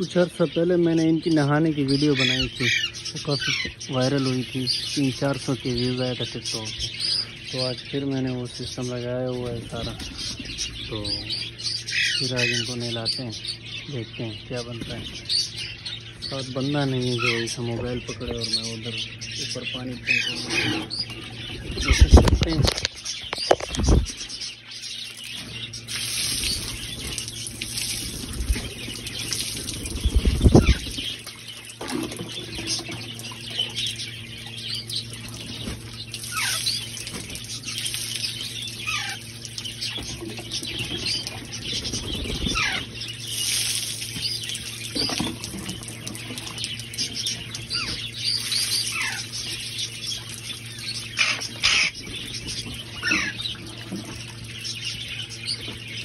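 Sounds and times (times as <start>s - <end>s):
parrots chirping and squawking: 0.0s - 56.0s
water spraying from sprinkler: 25.1s - 32.5s, 34.7s - 40.6s, 42.2s - 51.0s.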